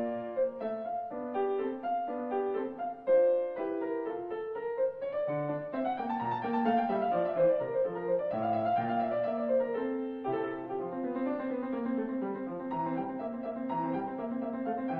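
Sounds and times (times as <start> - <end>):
piano music: 0.0 - 14.9.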